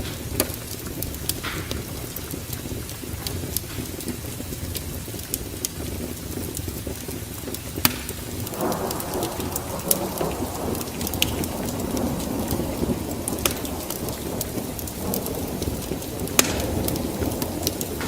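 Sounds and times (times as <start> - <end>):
rain rushing: 0.0 - 18.0
wood fire crackling and popping: 0.0 - 18.0
thunder rumbling: 8.2 - 18.0.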